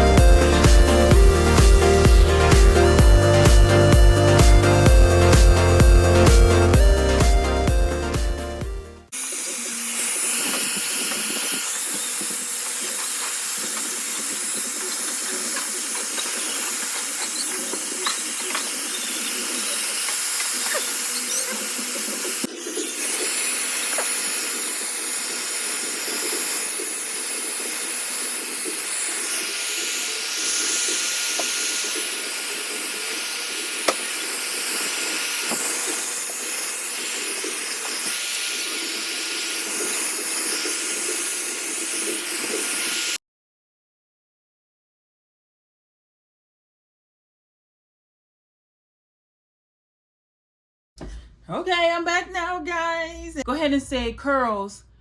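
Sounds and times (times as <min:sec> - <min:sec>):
hair dryer running: 0:00.0 - 0:43.2.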